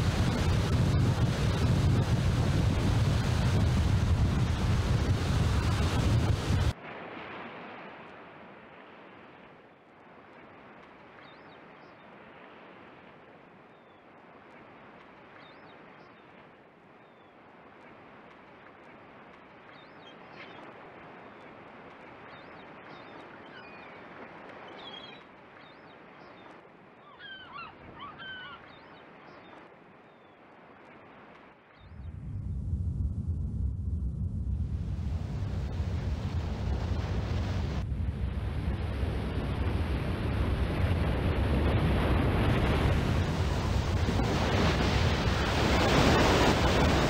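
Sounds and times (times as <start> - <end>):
surf rushing: 0.0 - 9.6, 30.7 - 47.0
wind: 0.0 - 47.0
birds calling: 22.4 - 30.4.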